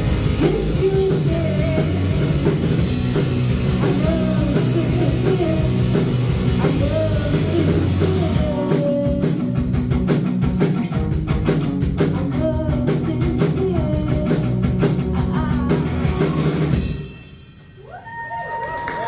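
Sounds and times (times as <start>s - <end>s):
guitar: 0.0s - 17.8s
drums: 0.0s - 19.0s
person singing: 0.3s - 2.6s, 3.8s - 9.8s, 12.0s - 16.8s.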